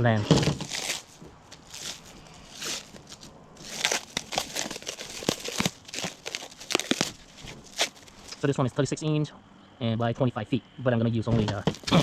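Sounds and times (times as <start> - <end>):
mesh crinkling and rustling: 0.2 - 8.4, 11.4 - 12.0.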